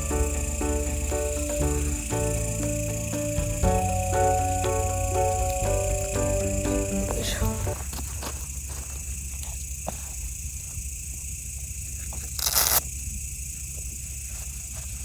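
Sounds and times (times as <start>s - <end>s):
low rumble: 0.0s - 7.9s
campfire crackling: 0.0s - 8.2s
insects trilling: 0.0s - 15.0s.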